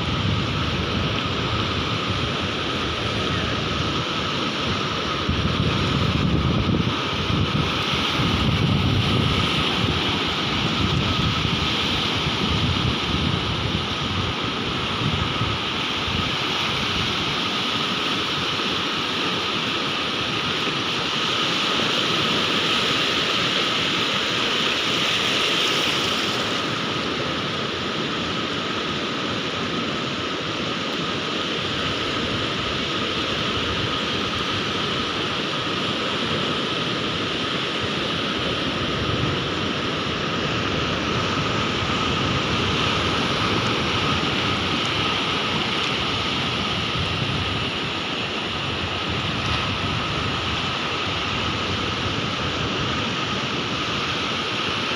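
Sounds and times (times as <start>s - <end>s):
sea waves breaking: 0.0s - 54.9s.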